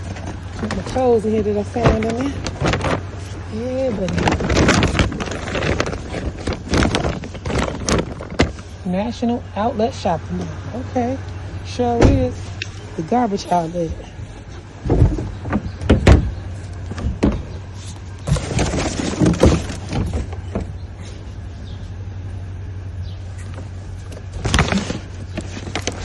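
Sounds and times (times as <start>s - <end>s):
rustling of items being handled: 0.0s - 22.0s, 23.3s - 26.0s
steady low hum: 0.0s - 26.0s
knocks and thumps of items: 14.8s - 17.6s, 18.2s - 20.7s.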